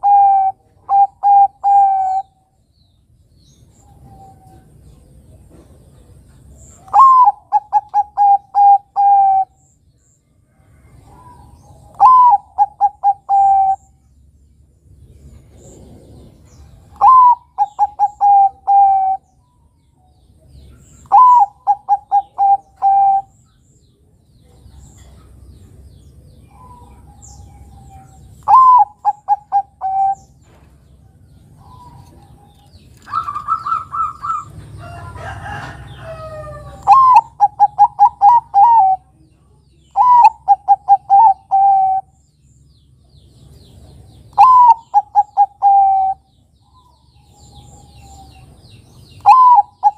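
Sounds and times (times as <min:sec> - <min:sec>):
dove cooing: 0:00.0 - 0:02.4, 0:06.8 - 0:09.6, 0:11.0 - 0:13.9, 0:15.5 - 0:19.4, 0:21.0 - 0:23.4, 0:26.4 - 0:30.6, 0:31.5 - 0:39.2, 0:39.9 - 0:42.2, 0:44.3 - 0:48.5, 0:49.2 - 0:49.9
higher bird call: 0:21.0 - 0:23.4, 0:44.4 - 0:46.3.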